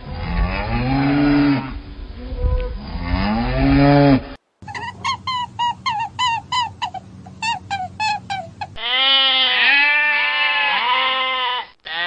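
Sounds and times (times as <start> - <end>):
sheep bleating: 8.8 - 12.0.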